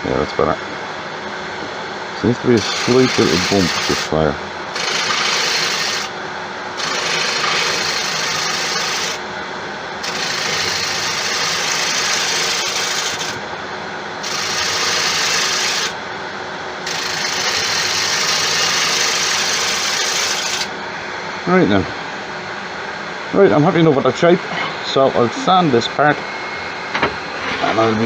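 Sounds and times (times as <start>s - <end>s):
gouge cutting spinning wood: 2.5s - 6.1s, 6.8s - 9.2s, 10.0s - 13.4s, 14.2s - 16.0s, 16.8s - 20.7s
wood lathe running: 2.5s - 6.1s, 6.8s - 9.2s, 10.0s - 13.5s, 14.2s - 16.0s, 16.8s - 20.7s.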